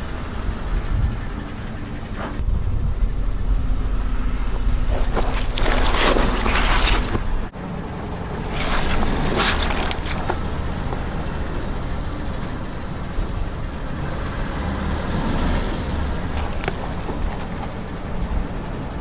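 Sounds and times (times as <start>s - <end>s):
car engine running: 0.0s - 19.0s
object crushed under tyre: 4.9s - 7.5s, 8.5s - 11.1s.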